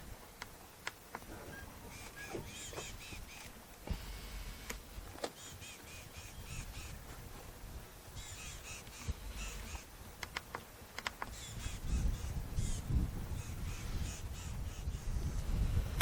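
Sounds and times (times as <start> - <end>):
bird harsh rapid calls: 1.4 - 3.5, 5.3 - 7.0, 8.2 - 9.9, 11.3 - 15.2.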